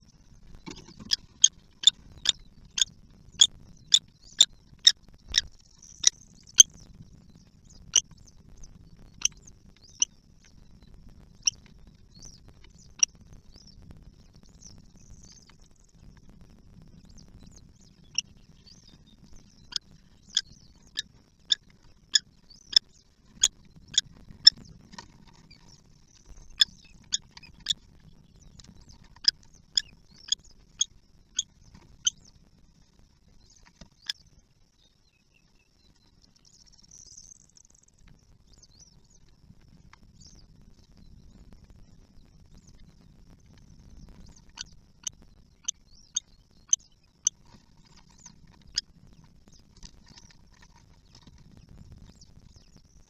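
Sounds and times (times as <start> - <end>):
bird chicks squeaking: 0.5 - 4.5.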